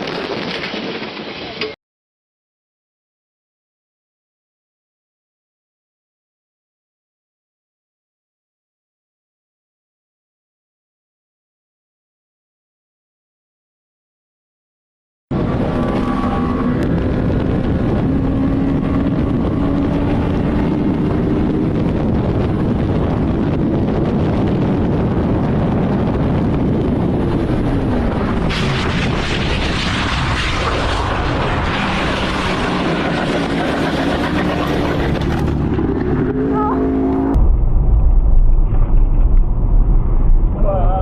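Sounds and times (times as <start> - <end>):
car engine: 15.3 - 40.9
road noise: 15.3 - 41.0
muffled low rumble: 15.4 - 41.0.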